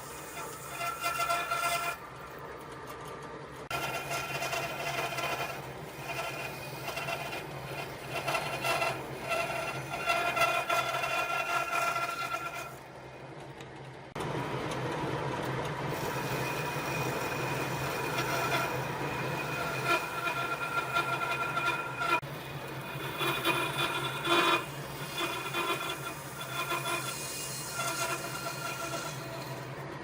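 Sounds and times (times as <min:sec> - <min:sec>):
sawing wood: 0:00.0 - 0:02.2, 0:03.7 - 0:12.9, 0:15.9 - 0:29.9
steady machine noise: 0:00.0 - 0:30.0.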